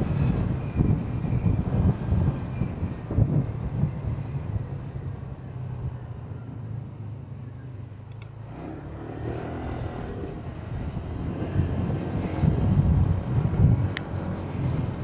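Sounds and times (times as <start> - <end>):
wind on microphone: 0.0 - 5.1, 8.6 - 15.0.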